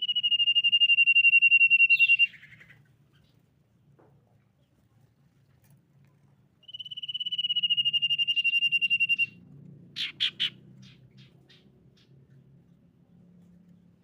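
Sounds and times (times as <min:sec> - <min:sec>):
bird singing pulsing whistle: 0:00.0 - 0:02.7, 0:06.6 - 0:09.4.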